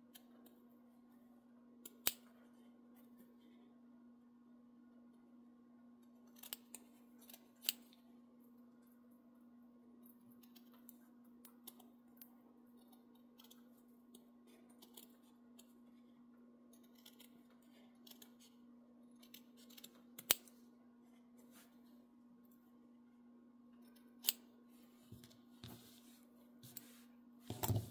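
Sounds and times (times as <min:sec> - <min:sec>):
faint hum: 0:00.0 - 0:27.9
small scissors snipping: 0:01.8 - 0:02.3, 0:06.3 - 0:08.0, 0:19.1 - 0:20.6.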